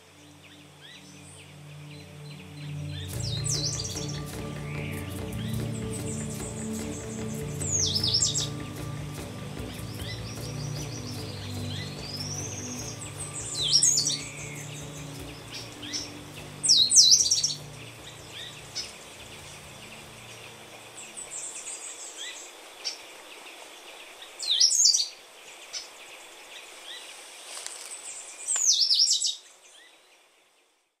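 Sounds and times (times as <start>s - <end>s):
bird singing loud phrases: 0.2s - 23.0s, 28.4s - 30.0s.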